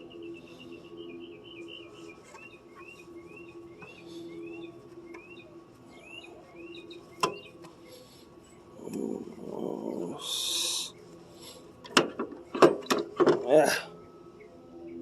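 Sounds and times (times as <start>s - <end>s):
bird chirping: 0.0s - 11.0s
steady low hum: 0.0s - 15.0s.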